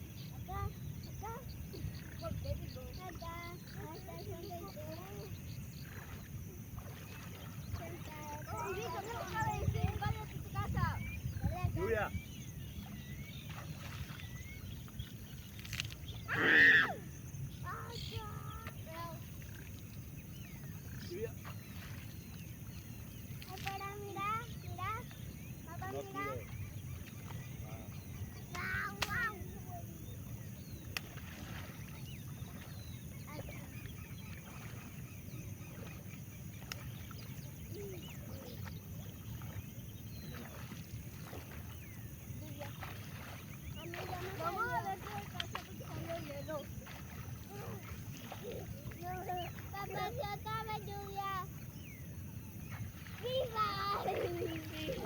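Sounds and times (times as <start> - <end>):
small birds chirping: 0.0 - 55.0
loud cry: 16.3 - 17.0.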